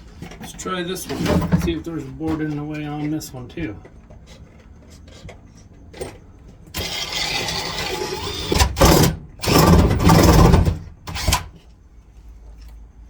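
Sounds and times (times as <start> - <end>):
power drill boring wood: 6.8 - 11.5.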